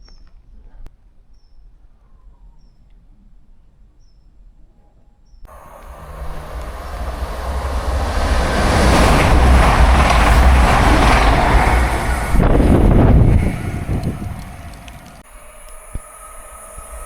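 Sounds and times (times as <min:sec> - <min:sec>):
train passing at speed: 0:05.5 - 0:17.0.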